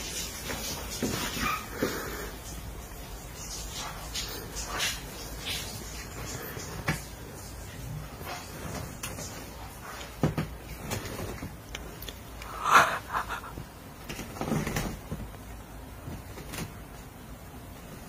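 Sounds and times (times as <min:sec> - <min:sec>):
cat scratching and ripping padding: 0:08.2 - 0:12.0, 0:14.0 - 0:17.0.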